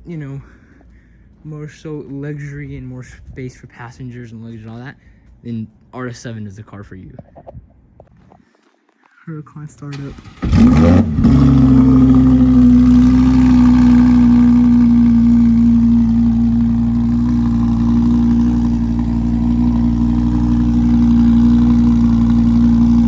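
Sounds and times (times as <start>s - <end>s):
loud car engine starting and idling: 9.9s - 23.0s.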